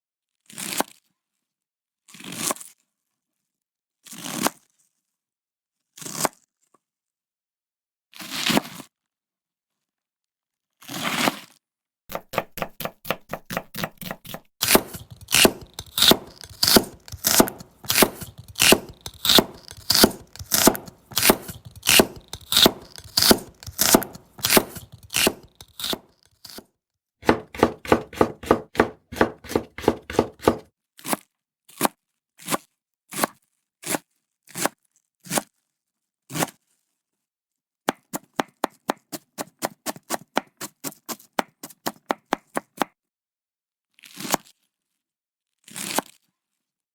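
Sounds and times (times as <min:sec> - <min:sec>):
knife chopping on cutting board: 0:12.1 - 0:26.6, 0:27.2 - 0:30.6, 0:37.9 - 0:42.9.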